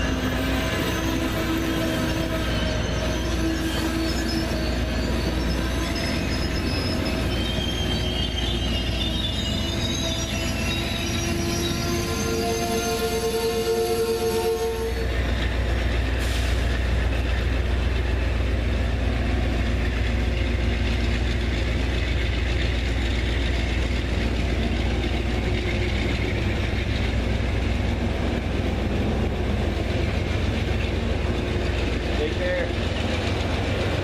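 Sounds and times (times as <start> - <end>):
diesel train rumbling past: 0.0 - 34.0
locomotive air horn: 11.7 - 15.2.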